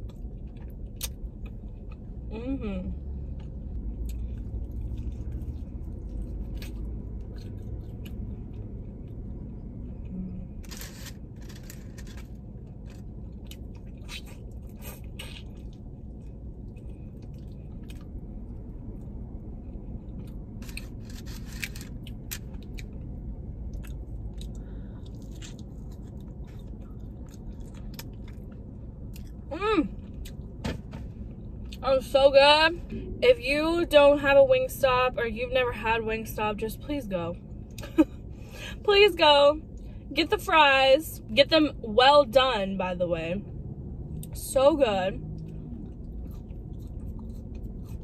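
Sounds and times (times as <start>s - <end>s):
chewing and crunching: 0.0s - 2.3s, 3.3s - 30.5s, 45.4s - 48.0s.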